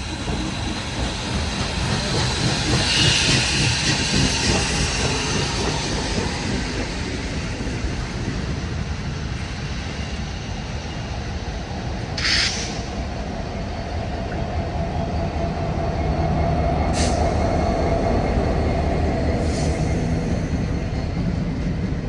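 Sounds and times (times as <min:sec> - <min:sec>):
steam locomotive rumbling: 0:00.0 - 0:22.0
steam hiss: 0:01.8 - 0:11.1, 0:12.2 - 0:13.2, 0:16.9 - 0:17.7.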